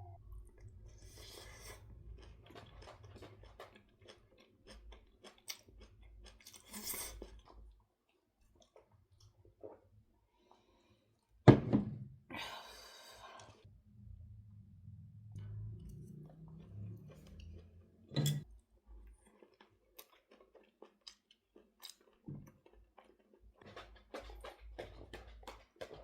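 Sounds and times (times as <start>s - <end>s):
chewing and crunching: 0.4s - 9.8s, 15.4s - 17.9s, 18.8s - 26.0s.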